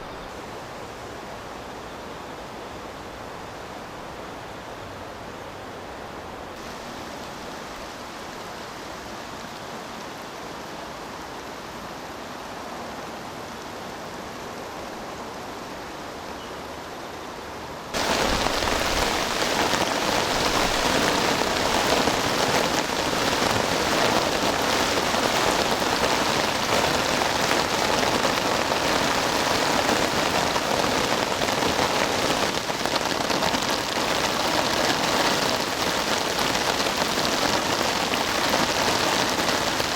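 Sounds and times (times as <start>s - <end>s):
heavy rain falling: 5.8s - 13.0s, 17.9s - 39.9s.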